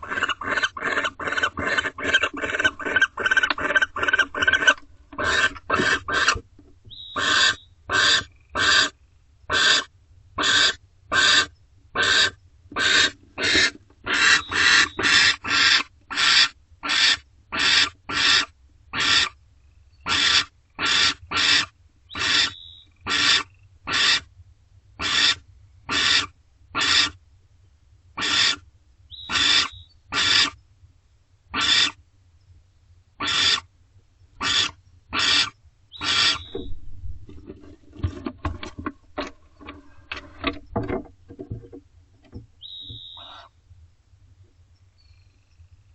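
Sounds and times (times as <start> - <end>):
barn owl harsh calls: 0.0 - 19.4, 20.0 - 24.3, 25.0 - 27.2, 28.2 - 30.6, 31.5 - 32.0, 33.2 - 33.7, 34.4 - 36.7, 42.6 - 43.6
faint high chirps: 22.1 - 23.1, 42.6 - 43.6.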